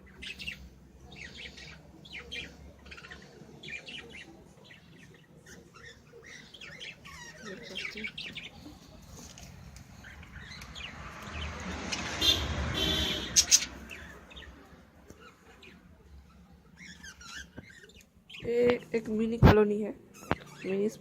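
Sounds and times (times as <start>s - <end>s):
rustling noise: 8.6s - 10.0s
budgerigars chattering: 12.0s - 14.5s.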